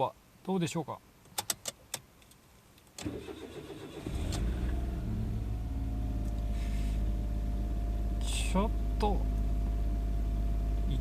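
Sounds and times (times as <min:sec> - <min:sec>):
car engine cranking: 0:03.0 - 0:11.0
car engine idling: 0:03.4 - 0:11.0.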